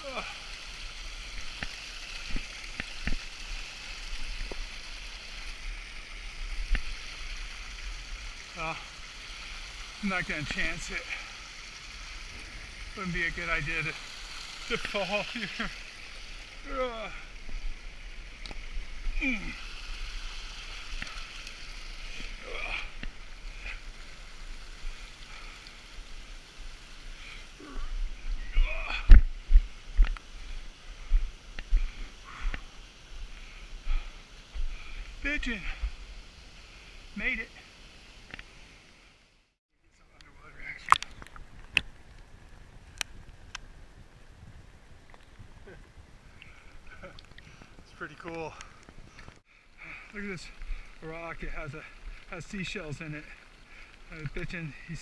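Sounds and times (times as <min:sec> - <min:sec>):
small waterfall rushing: 0:00.0 - 0:39.5, 0:46.1 - 0:55.0
wind rumble on microphone: 0:41.1 - 0:47.8.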